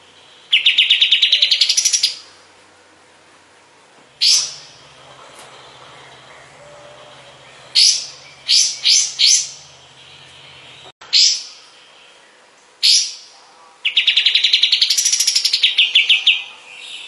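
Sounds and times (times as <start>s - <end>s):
bulbul calling: 4.2s - 11.6s.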